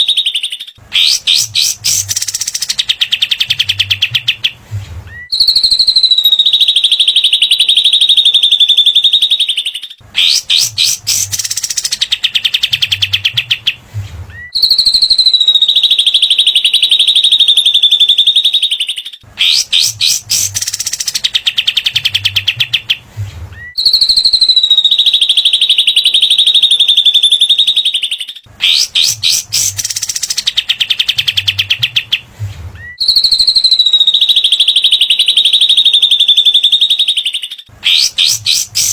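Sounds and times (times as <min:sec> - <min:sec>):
bird rapid high trill: 0:00.9 - 0:03.5, 0:10.2 - 0:12.7, 0:19.4 - 0:21.4, 0:28.6 - 0:31.1, 0:37.8 - 0:38.9
bird stuttering chattering notes: 0:01.0 - 0:04.5, 0:10.2 - 0:13.8, 0:19.4 - 0:22.2, 0:28.6 - 0:32.1, 0:37.8 - 0:38.9.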